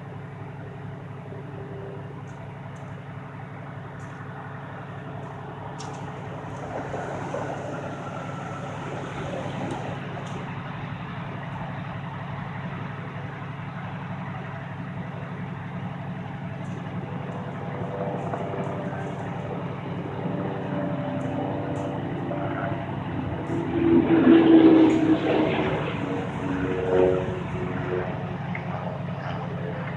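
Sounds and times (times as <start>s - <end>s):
heavy vehicle engine idling: 0.0s - 23.7s, 24.9s - 29.9s.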